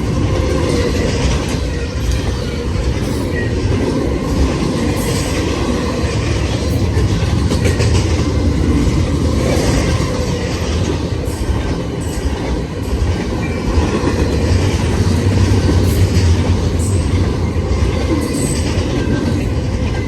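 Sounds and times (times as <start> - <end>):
train wheels rumbling on rail: 0.0 - 20.0
wheels clicking over rail joints: 0.0 - 20.0.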